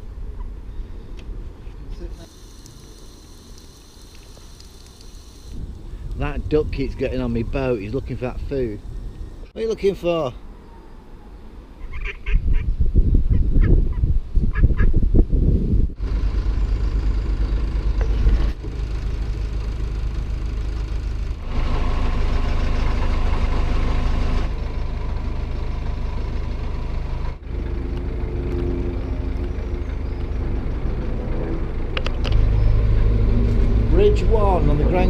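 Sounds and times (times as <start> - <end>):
diesel boat engine throbbing: 16.0 - 35.0.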